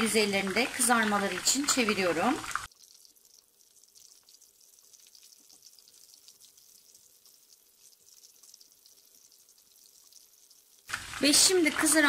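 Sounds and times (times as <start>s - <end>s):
food deep-frying in oil: 0.0s - 12.0s
oil bubbles crackling: 0.0s - 12.0s.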